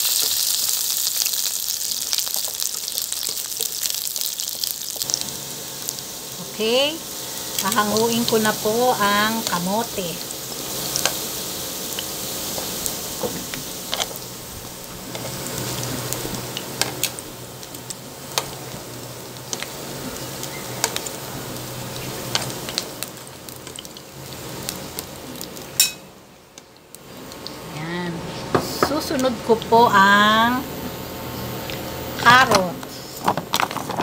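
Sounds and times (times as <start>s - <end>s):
food sizzling in oil: 0.0s - 33.7s
metal tongs tapping pan: 25.8s - 26.0s.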